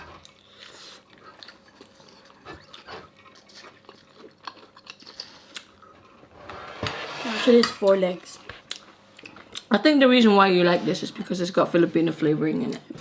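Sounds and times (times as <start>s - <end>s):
chewing and biting food: 0.1s - 6.3s.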